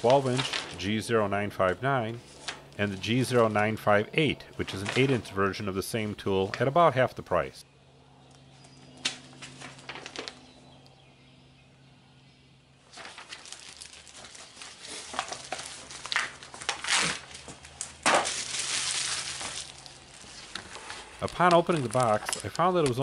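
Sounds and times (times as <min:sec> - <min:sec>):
steady low hum: 0:00.0 - 0:13.2
cardboard box rustling and crinkling: 0:09.4 - 0:10.4, 0:12.9 - 0:23.0.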